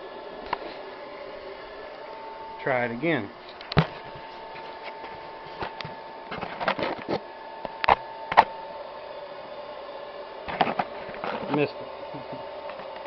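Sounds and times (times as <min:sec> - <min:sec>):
hairdryer whine: 0:00.0 - 0:13.0
burner relighting clicks: 0:03.4 - 0:03.9.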